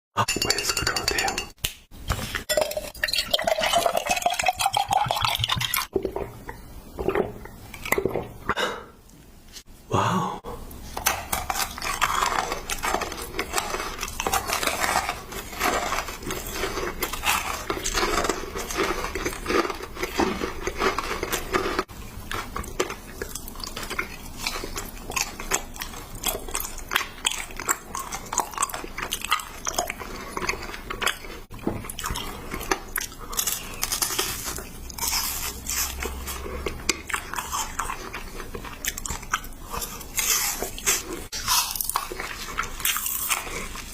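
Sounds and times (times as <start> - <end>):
candy crunched and chewed: 11.0 - 43.9.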